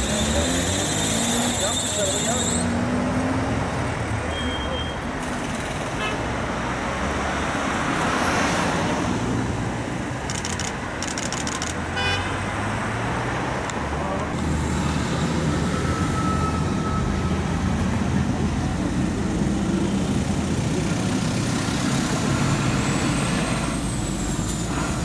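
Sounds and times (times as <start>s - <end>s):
vehicles passing: 0.0s - 25.0s
brief tone: 4.3s - 5.0s, 15.7s - 17.4s.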